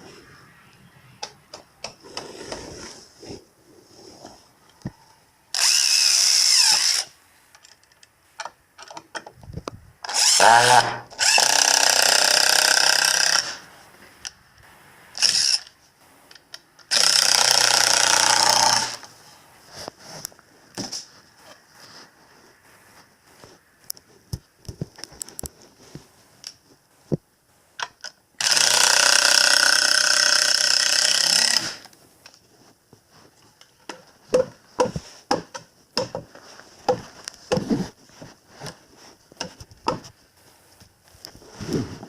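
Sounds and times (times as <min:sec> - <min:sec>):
small power tool motor: 0:05.6 - 0:07.1, 0:10.1 - 0:13.6, 0:15.2 - 0:15.7, 0:16.9 - 0:19.1, 0:28.4 - 0:31.8
clicks and knocks of tools: 0:07.5 - 0:09.8.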